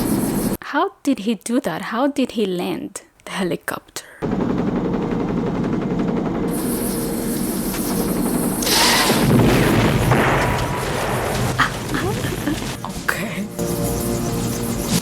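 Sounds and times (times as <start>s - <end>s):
helicopter rotor chopping: 0.0s - 0.6s, 4.2s - 15.0s.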